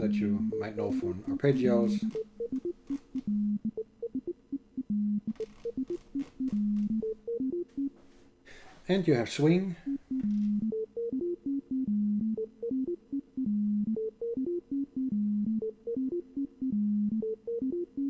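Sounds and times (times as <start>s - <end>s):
synthesizer sequencer melody: 0.0s - 8.0s.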